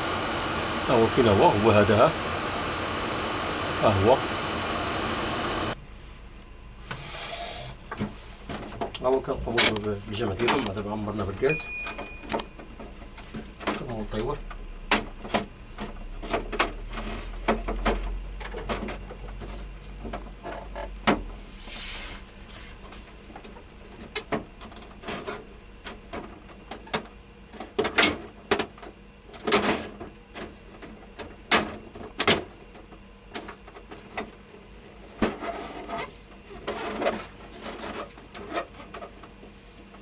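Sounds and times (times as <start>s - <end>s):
low hum: 0.0s - 6.4s.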